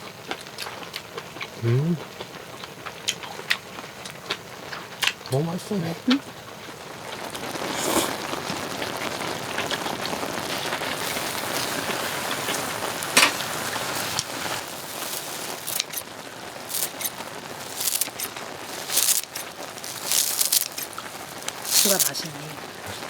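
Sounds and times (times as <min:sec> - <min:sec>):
food sizzling in a pan: 0:00.0 - 0:23.0
utensils clicking: 0:15.0 - 0:16.1, 0:16.7 - 0:22.1.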